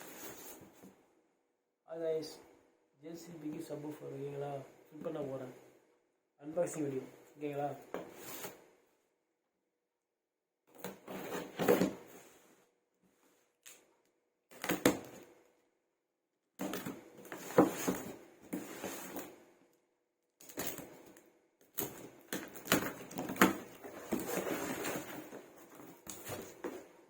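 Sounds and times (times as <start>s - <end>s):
cardboard scraping and rustling: 0.0s - 0.9s, 8.0s - 8.6s, 10.8s - 12.5s, 16.6s - 19.4s, 21.8s - 27.0s.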